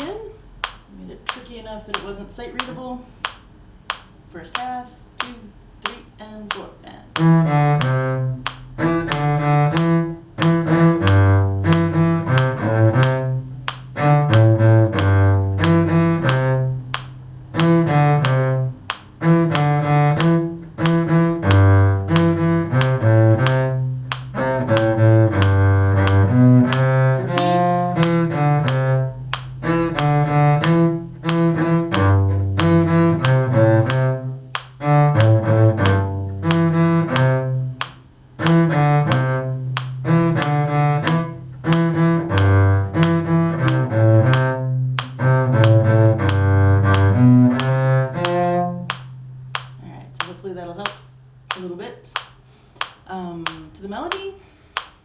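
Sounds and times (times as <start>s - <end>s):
cello melody played with bow: 7.1s - 49.7s.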